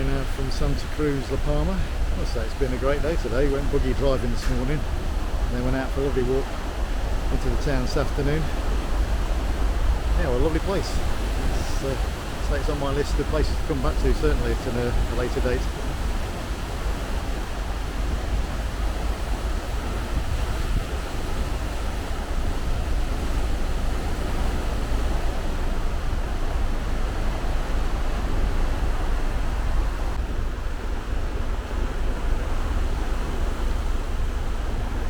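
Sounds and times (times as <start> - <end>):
wind and sea rushing: 0.0 - 35.0
wind buffeting microphone: 13.2 - 35.0.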